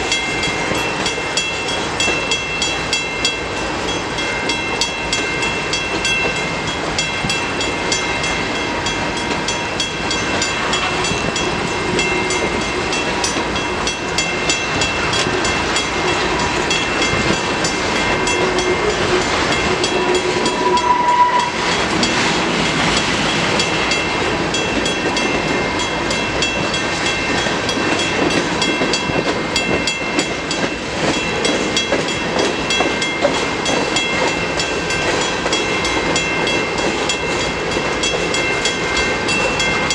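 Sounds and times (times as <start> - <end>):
steel wheels whining: 0.0 - 39.9
train wheels clicking over rails: 0.0 - 39.9
wheel squeal: 18.3 - 21.7.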